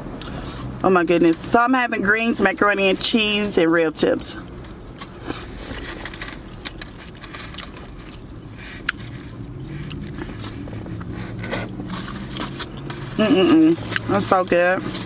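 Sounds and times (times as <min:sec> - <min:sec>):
low steady hum: 0:00.0 - 0:15.0
chewing: 0:04.4 - 0:14.1
utensil scraping food: 0:05.0 - 0:15.0.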